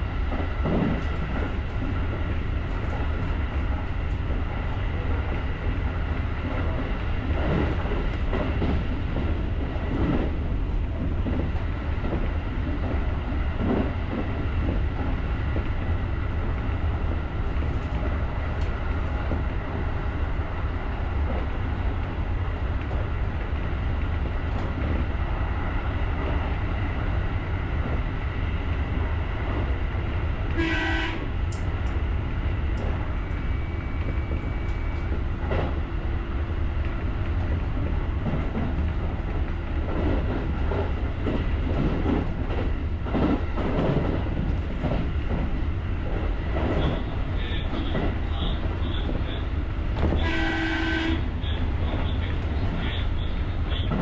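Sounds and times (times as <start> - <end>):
train rumbling: 0.0 - 54.0
train horn blast: 30.5 - 31.3, 50.1 - 51.4.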